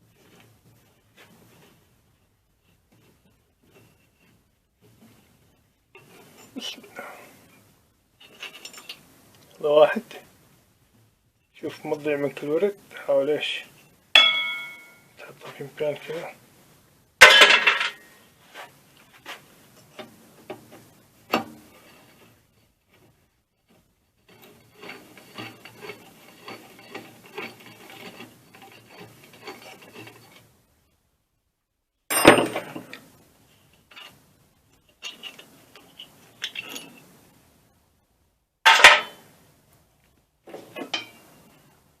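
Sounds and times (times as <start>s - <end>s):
metal rubbing and scraping: 0.0s - 9.1s, 17.2s - 30.6s, 33.6s - 37.4s
metal parts clattering: 17.2s - 18.1s, 35.0s - 37.0s, 38.7s - 39.2s
metal parts clicking and knocking: 34.8s - 37.1s.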